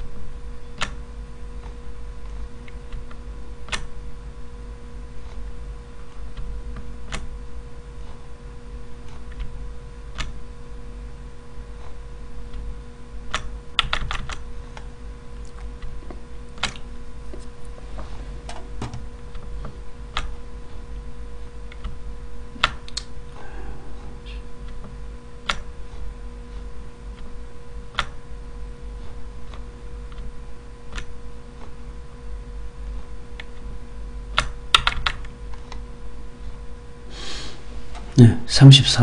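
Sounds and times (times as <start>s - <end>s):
faint electrical hum: 0.0s - 39.0s
keyboard keys clicking: 13.3s - 14.4s.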